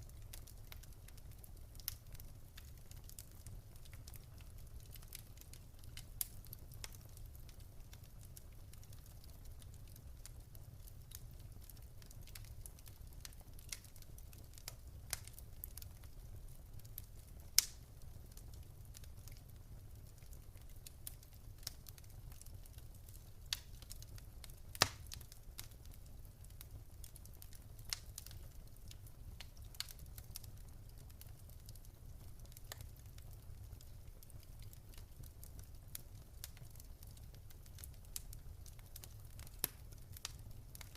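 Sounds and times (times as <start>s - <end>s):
wood fire crackling in fireplace: 0.0s - 40.9s
loud fire pops: 17.6s - 17.9s, 24.7s - 25.7s.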